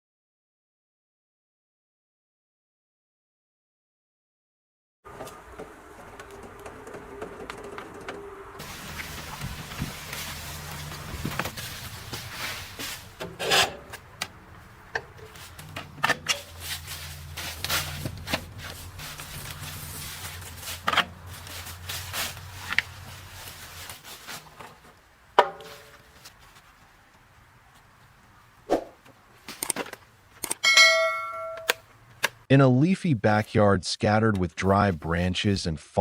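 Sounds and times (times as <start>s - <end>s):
wood cracking and scraping: 5.1s - 25.0s.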